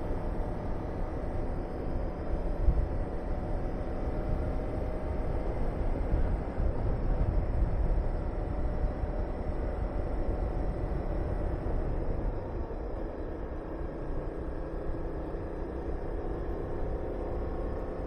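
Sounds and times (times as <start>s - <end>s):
wind rushing over microphone: 2.4s - 13.1s.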